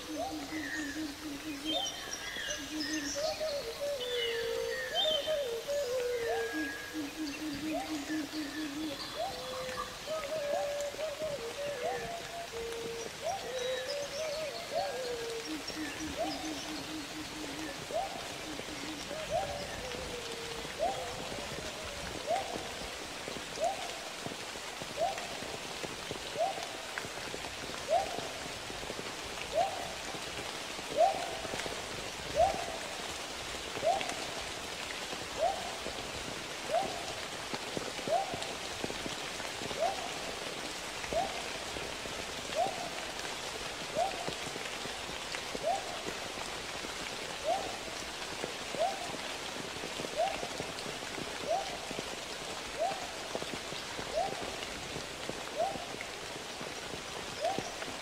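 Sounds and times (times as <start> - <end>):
bird hooting: 0.0 - 22.7
rushing water: 0.0 - 58.0.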